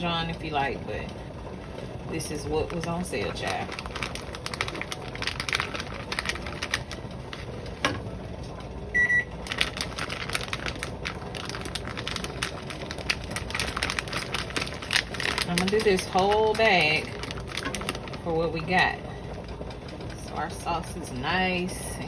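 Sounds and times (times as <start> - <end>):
kitchen appliance beep: 8.9 - 9.4.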